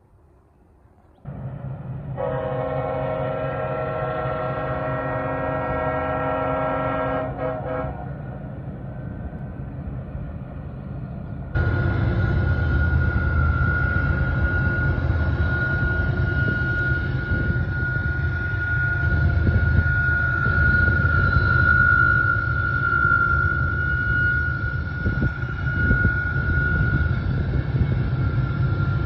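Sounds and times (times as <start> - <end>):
freight train rumbling: 0.0 - 29.0
diesel locomotive horn: 2.1 - 8.4, 11.6 - 29.0
high whine: 11.2 - 29.0.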